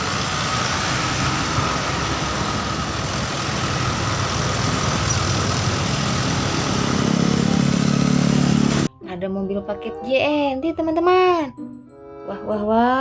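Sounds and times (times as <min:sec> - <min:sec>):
vehicle engine idling: 0:00.0 - 0:08.9.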